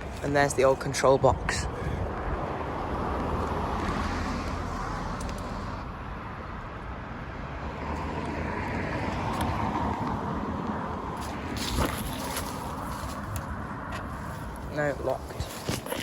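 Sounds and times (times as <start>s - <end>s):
road traffic passing: 0.0s - 16.0s
vehicle going by: 2.0s - 14.4s.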